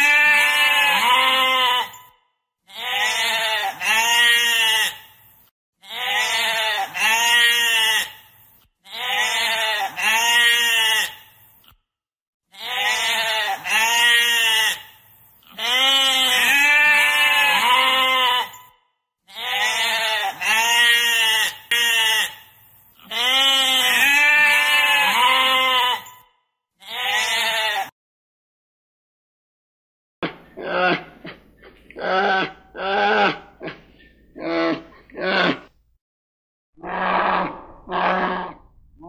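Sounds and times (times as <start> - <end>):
sheep bleating: 0.0 - 2.1, 2.7 - 5.1, 5.8 - 8.2, 8.8 - 11.3, 12.5 - 18.7, 19.3 - 22.4, 23.0 - 26.2, 26.8 - 27.9.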